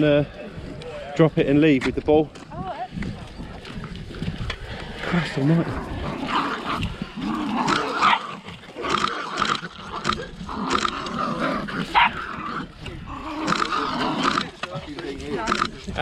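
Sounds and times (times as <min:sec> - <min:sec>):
dogs barking and growling: 0:04.4 - 0:15.8.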